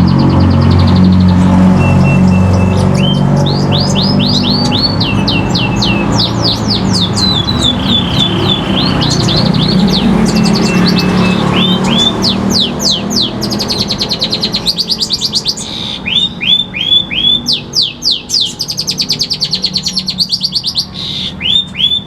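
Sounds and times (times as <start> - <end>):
bird whistling song: 0.0 - 22.0.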